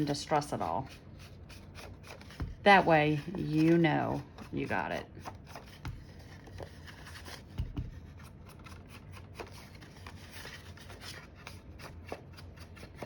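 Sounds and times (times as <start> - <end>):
scraping strokes on paper: 0.0 - 8.6.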